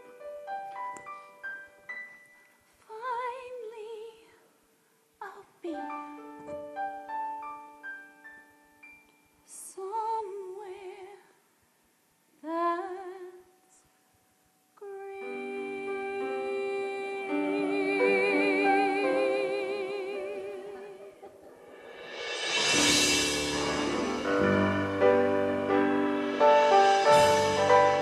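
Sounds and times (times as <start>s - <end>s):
woman singing with vibrato: 2.8s - 4.4s, 5.2s - 6.2s, 9.5s - 11.3s, 12.4s - 13.6s, 14.8s - 21.5s
keyboard accompaniment: 22.0s - 28.0s.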